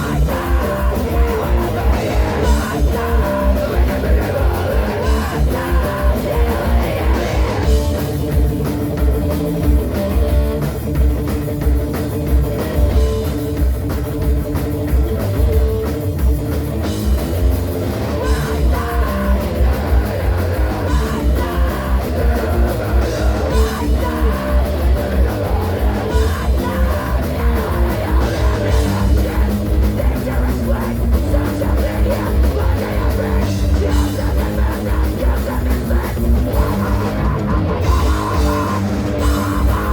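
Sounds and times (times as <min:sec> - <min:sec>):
person singing: 0:00.0 - 0:08.0, 0:18.2 - 0:39.9
bass guitar: 0:00.0 - 0:39.9
distorted electric guitars: 0:00.0 - 0:39.9
pounding drum kit: 0:00.0 - 0:39.9.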